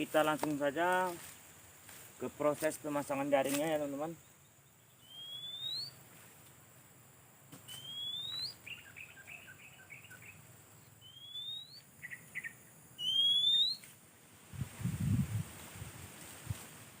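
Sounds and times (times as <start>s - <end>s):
bird whistle rising: 5.0s - 6.0s, 7.7s - 10.4s, 11.0s - 13.8s.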